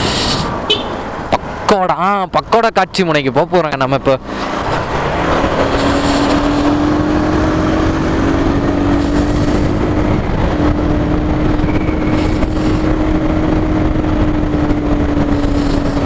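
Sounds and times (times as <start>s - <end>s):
motorcycle engine cruising: 4.2s - 16.0s
wind on microphone: 4.4s - 16.0s.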